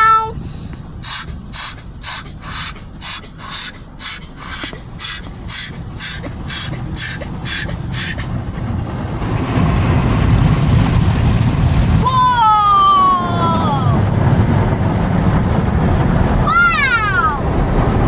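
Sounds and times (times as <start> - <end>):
heavy rush of spray: 0.9 - 8.8, 10.1 - 12.7
spray jets hissing against car: 1.0 - 8.4.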